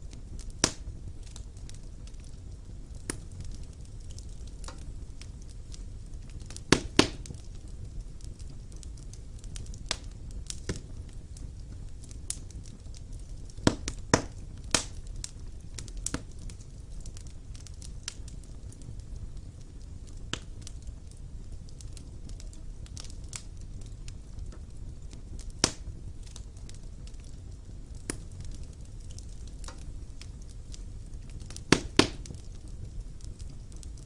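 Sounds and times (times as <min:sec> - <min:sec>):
fire crackling and popping: 0:00.0 - 0:34.0
fire rumbling: 0:00.0 - 0:34.0.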